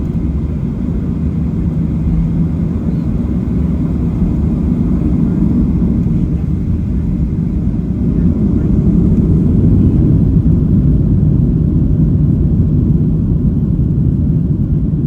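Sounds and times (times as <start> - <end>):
cabin airflow: 0.0 - 10.9
jet engines rumbling in cabin: 0.0 - 15.0.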